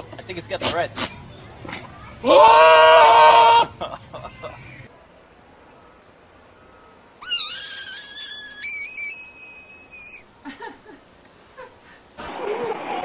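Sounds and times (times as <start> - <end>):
rough animal sound: 7.2 - 10.1
faint short animal calls: 7.2 - 10.2
frog high-pitched scream: 7.2 - 10.2.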